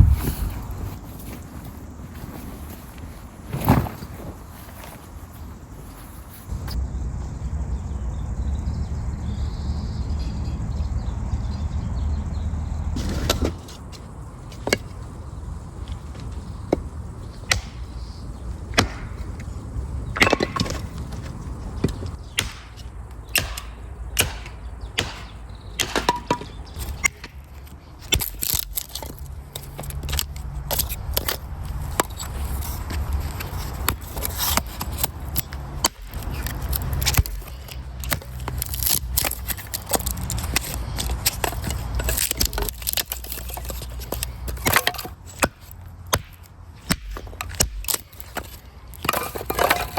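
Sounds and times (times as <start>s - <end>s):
dry wood cracking and snapping: 21.8s - 49.9s.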